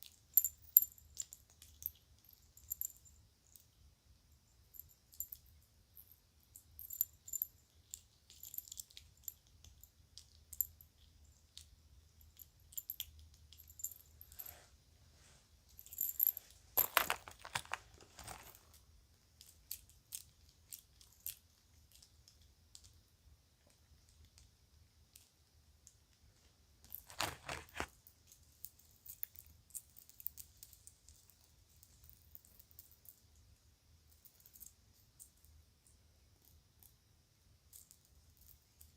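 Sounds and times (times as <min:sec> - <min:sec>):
jewelry clinking: 0:00.0 - 0:03.8, 0:04.5 - 0:14.7, 0:15.7 - 0:18.8, 0:26.8 - 0:33.3, 0:34.1 - 0:35.5
handling noise: 0:15.8 - 0:18.8, 0:26.9 - 0:28.0.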